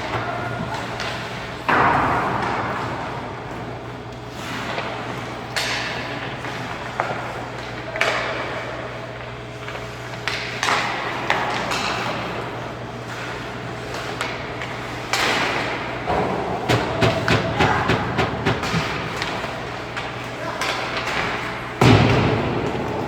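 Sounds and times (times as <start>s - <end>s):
hockey sticks and puck clacking: 0.0s - 23.0s
steady rink hum: 0.0s - 23.0s
skate blades scraping ice: 4.3s - 8.8s, 9.5s - 15.9s.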